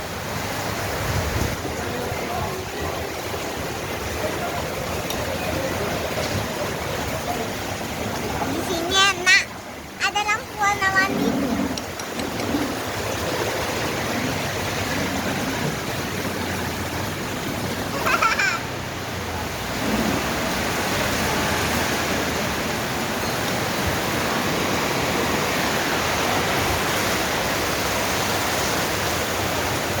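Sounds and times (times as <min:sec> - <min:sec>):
heavy rain hissing: 0:00.0 - 0:30.0.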